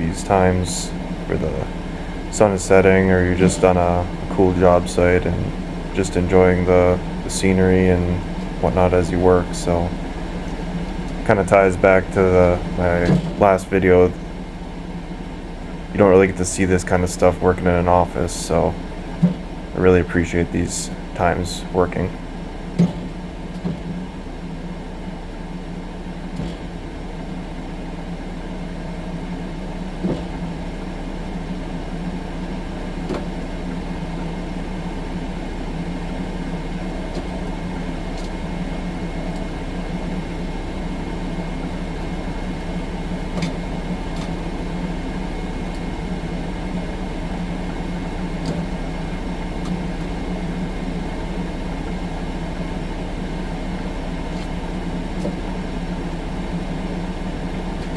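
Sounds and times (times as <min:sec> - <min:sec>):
loader engine running: 0:00.0 - 0:57.9
light knocks and clunks: 0:12.6 - 0:13.6.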